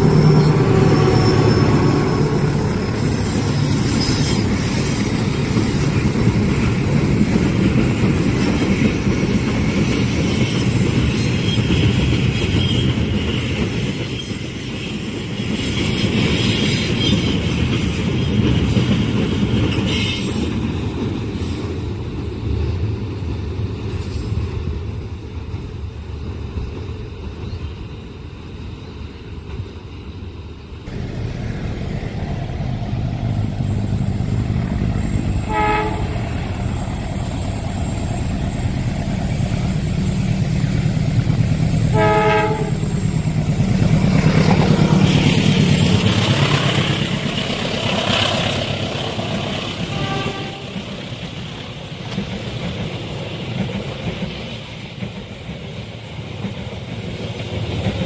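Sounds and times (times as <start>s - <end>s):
rumble and clatter of train wagons: 0.0s - 58.0s
train passing close: 0.0s - 58.0s
locomotive horn blasts: 35.4s - 36.4s, 41.8s - 43.0s, 49.8s - 50.9s.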